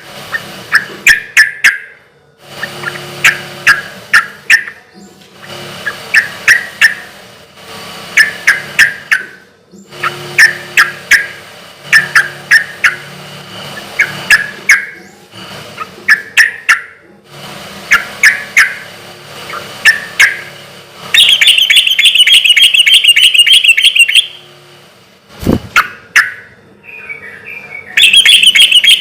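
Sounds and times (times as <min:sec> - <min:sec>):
bird calling in sharp notes: 0:00.7 - 0:02.0, 0:08.2 - 0:13.1, 0:14.0 - 0:15.2, 0:17.9 - 0:18.9, 0:21.2 - 0:24.5, 0:25.8 - 0:29.0
bird chattering trill: 0:08.2 - 0:13.1, 0:14.0 - 0:15.2, 0:21.2 - 0:24.4, 0:25.8 - 0:29.0.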